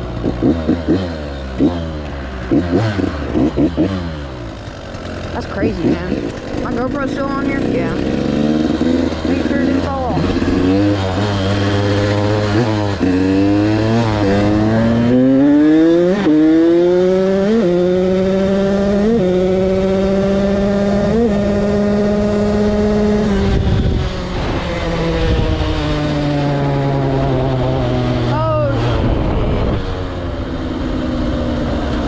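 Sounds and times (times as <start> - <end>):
two-stroke engine revving: 0.0 - 32.0
wind rushing over microphone: 7.6 - 32.0.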